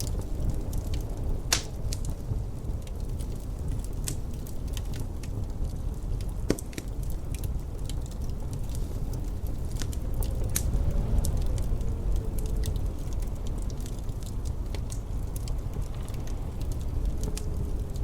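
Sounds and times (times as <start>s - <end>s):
fire popping: 0.0s - 18.0s
wood fire crackling: 0.0s - 18.0s
low rumble: 7.2s - 18.0s.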